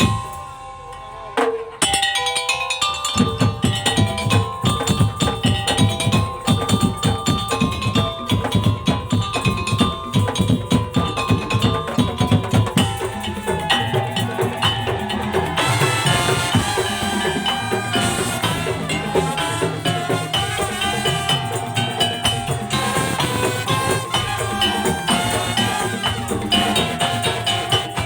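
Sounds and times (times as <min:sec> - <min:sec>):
percussion ensemble playing: 0:00.0 - 0:28.0
wooden slit drums: 0:00.0 - 0:28.0
melody of held tones: 0:12.7 - 0:28.0.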